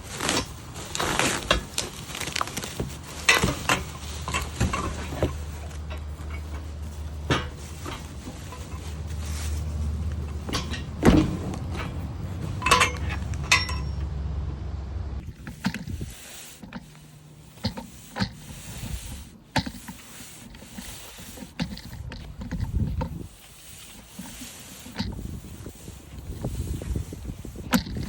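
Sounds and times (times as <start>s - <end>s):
light taps and scrapes: 2.7s - 14.0s, 15.2s - 28.0s
metal rake clanking: 2.9s - 14.2s
low rumble: 4.7s - 16.2s.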